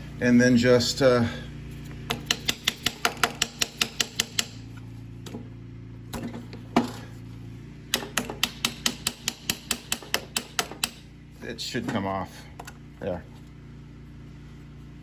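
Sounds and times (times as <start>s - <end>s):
low steady hum: 0.0s - 15.0s
ratchet clicking: 2.2s - 4.6s.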